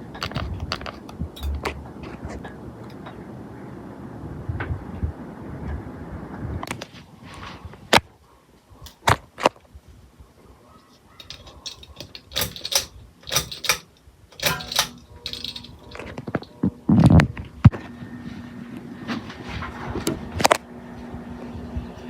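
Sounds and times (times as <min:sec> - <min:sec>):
sharp mechanical clicks: 0:11.2 - 0:16.1.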